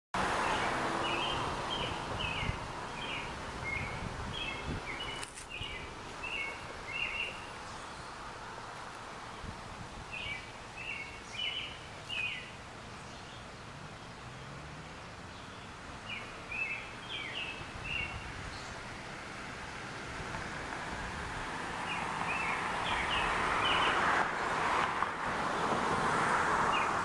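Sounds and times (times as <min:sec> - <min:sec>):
outdoor background hiss: 0:00.2 - 0:27.0
songbird chirping: 0:00.3 - 0:19.0, 0:21.8 - 0:24.1.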